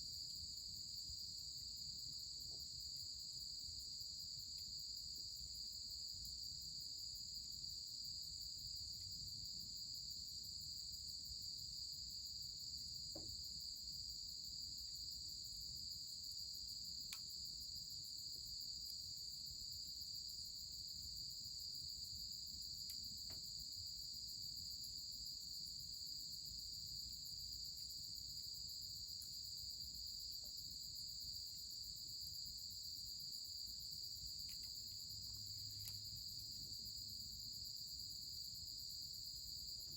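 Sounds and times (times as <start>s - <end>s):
crickets chirring: 14.7s - 39.9s
faint ticks: 17.0s - 17.4s, 22.8s - 23.6s, 34.3s - 36.4s.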